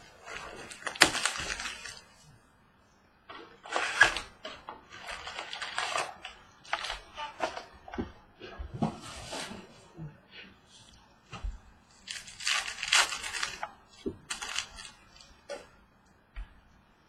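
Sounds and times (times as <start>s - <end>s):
wrappers tearing and crackling: 0.2s - 2.2s, 3.6s - 7.7s, 11.9s - 15.3s
cards being handled: 12.0s - 15.3s.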